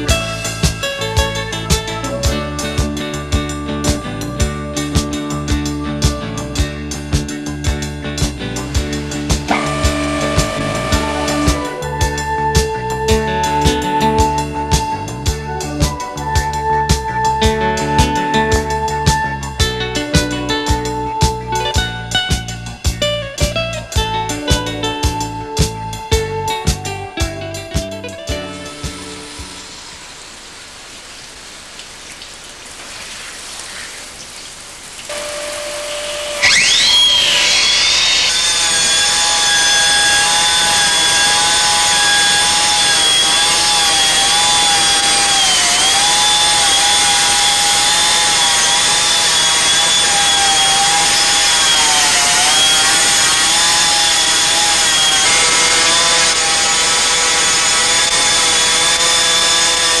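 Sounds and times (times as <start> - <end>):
stone-cutting saw hum: 8.3 - 15.1, 28.5 - 30.3, 35.1 - 60.0
cutting disc whining: 9.4 - 12.0, 35.1 - 60.0.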